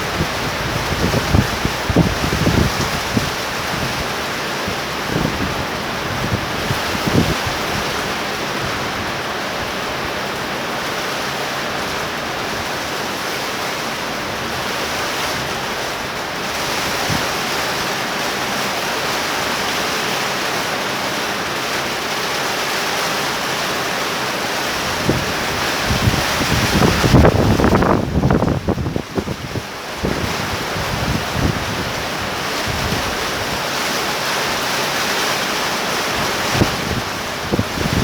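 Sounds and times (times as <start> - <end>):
wind buffeting microphone: 0.0 - 10.3, 24.7 - 33.7, 36.1 - 38.0
torrential rain pouring: 0.0 - 38.0.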